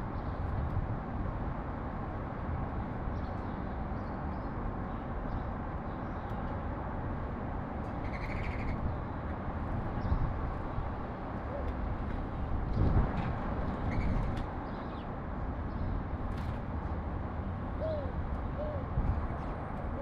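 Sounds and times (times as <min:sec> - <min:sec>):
low rumble of city traffic: 0:00.0 - 0:20.0
faint sparrow chirps: 0:08.0 - 0:08.8.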